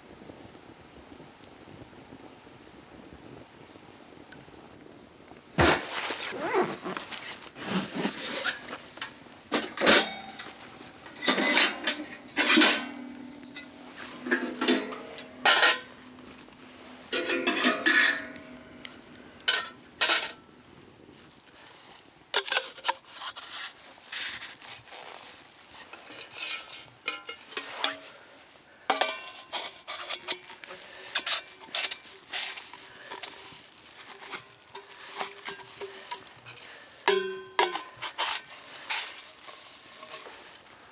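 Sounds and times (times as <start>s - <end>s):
metal utensil clanking on a pan: 8.4s - 16.1s, 17.1s - 20.4s, 26.0s - 28.1s, 28.9s - 33.4s, 34.0s - 40.4s.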